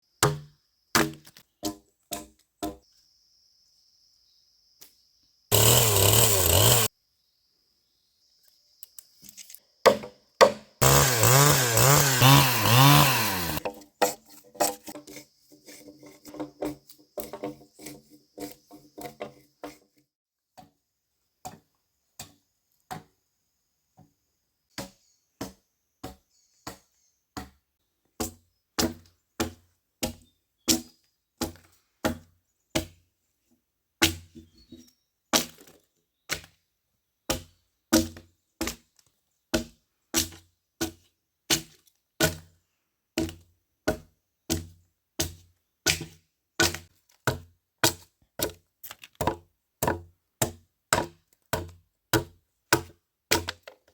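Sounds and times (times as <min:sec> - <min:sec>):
tool chopping into wood: 0:00.2 - 0:02.8, 0:05.5 - 0:06.9, 0:09.8 - 0:15.0, 0:27.4 - 0:27.6, 0:28.2 - 0:33.0, 0:34.0 - 0:34.4, 0:35.3 - 0:36.6, 0:37.3 - 0:38.8, 0:39.5 - 0:42.5, 0:43.2 - 0:48.6, 0:49.2 - 0:53.8.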